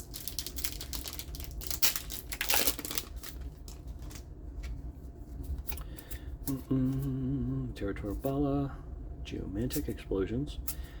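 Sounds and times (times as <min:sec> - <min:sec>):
plastic wrapper crinkling and tearing: 0:00.0 - 0:04.3.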